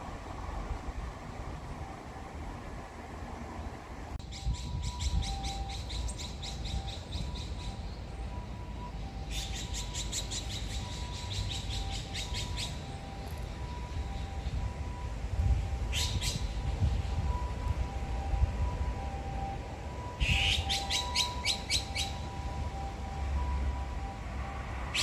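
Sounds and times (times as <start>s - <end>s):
wind rumble on microphone: 4.2s - 7.4s, 13.2s - 20.7s.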